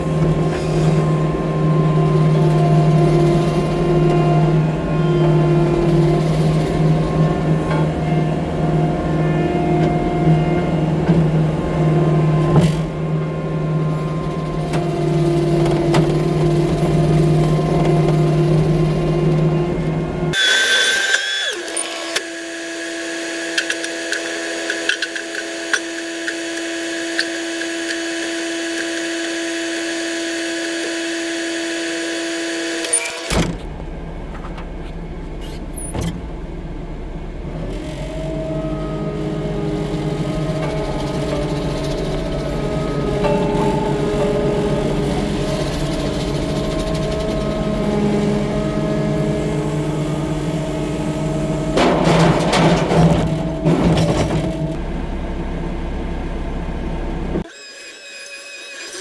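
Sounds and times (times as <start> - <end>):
low engine drone: 0.0 - 20.4, 33.3 - 57.5
high steady machine whine: 0.0 - 59.0.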